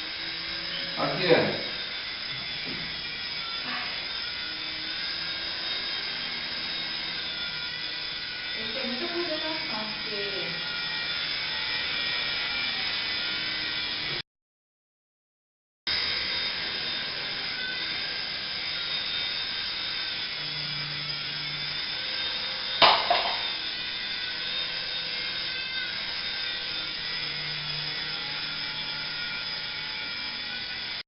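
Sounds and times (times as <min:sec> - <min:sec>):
toy helicopter motor whine: 0:00.0 - 0:14.2, 0:15.9 - 0:31.0
sharp knock: 0:22.8 - 0:23.4.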